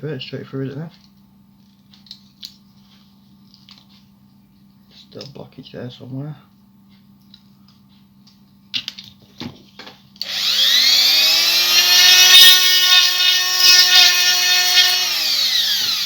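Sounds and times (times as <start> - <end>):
electric drill whining: 10.2 - 16.0.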